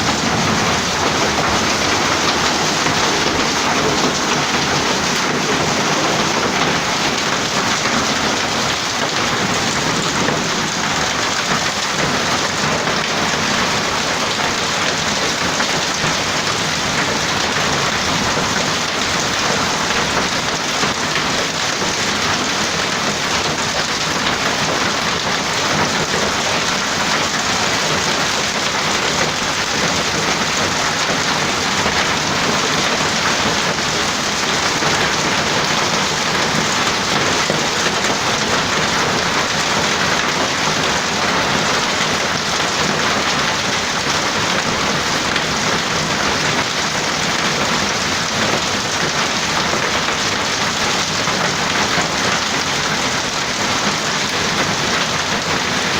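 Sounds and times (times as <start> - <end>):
hail falling hard: 0.0 - 55.9.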